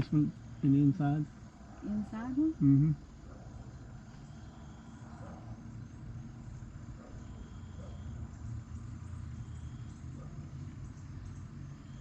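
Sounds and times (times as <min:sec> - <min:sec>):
low outdoor rumble: 0:00.0 - 0:12.0
faint high chirp: 0:03.6 - 0:06.0, 0:07.0 - 0:12.0.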